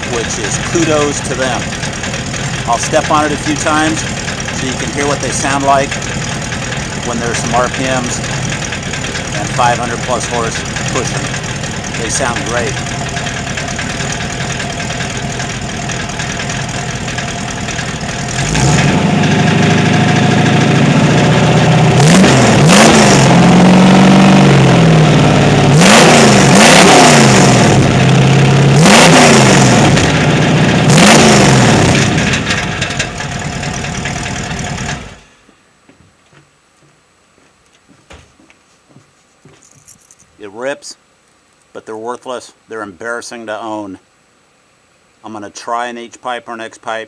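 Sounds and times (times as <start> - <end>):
car engine idling and revving: 0.0 - 35.3
loud exhaust ripping: 0.0 - 35.3.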